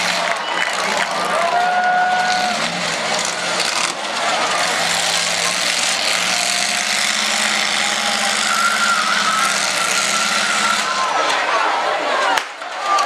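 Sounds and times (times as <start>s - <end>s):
high steady whine: 0.0s - 11.2s
steady engine note: 0.0s - 11.2s
car engines revving: 0.0s - 12.3s.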